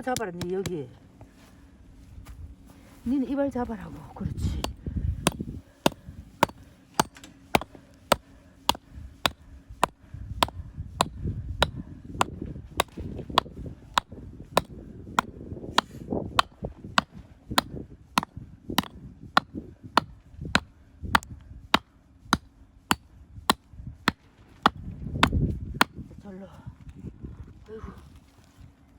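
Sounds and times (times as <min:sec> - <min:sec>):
axe chopping log: 0:04.6 - 0:26.0.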